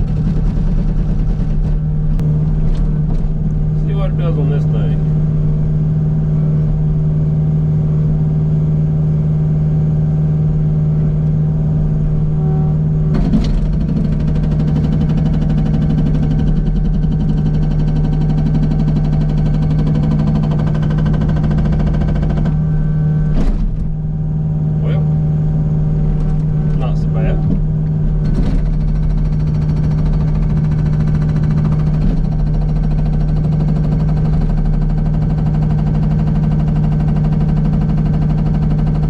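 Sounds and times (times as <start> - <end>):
diesel engine running: 0.0 - 39.0
sharp knocks: 13.1 - 22.7, 27.4 - 35.4.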